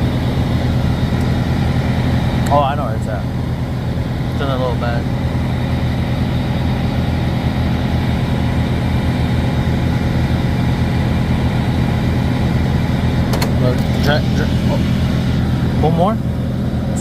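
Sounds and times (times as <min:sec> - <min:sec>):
truck diesel engine idling: 0:00.0 - 0:17.0.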